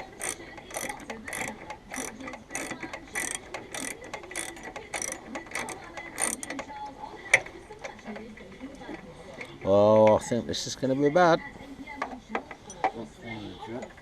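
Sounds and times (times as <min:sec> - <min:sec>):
ratchet spanner clicking: 0:00.0 - 0:10.3.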